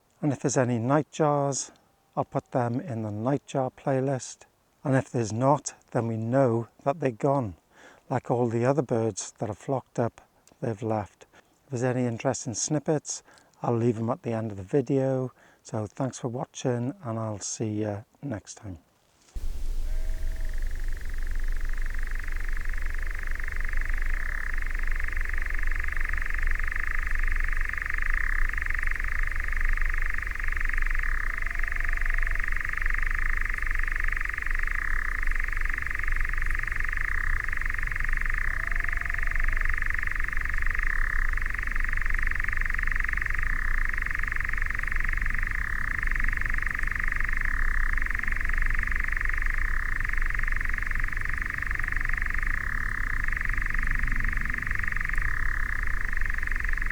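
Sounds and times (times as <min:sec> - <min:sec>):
low rumble: 0:19.4 - 0:26.2
nightjar churring trill: 0:19.4 - 0:56.9.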